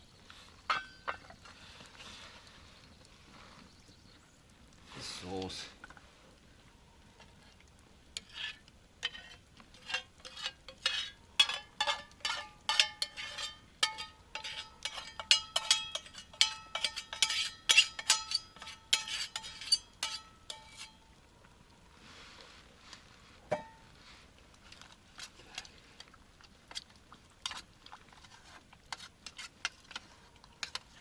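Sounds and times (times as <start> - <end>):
spoon scraping and clinking pot: 0.6 - 1.4, 8.2 - 21.1, 23.5 - 24.0, 26.7 - 31.0.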